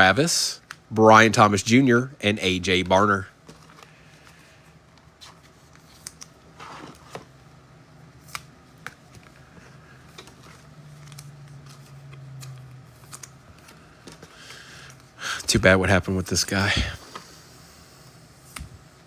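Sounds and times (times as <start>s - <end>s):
faint low hum: 0.0s - 19.0s
cards and wrappers rustling: 2.8s - 7.4s, 8.2s - 15.7s.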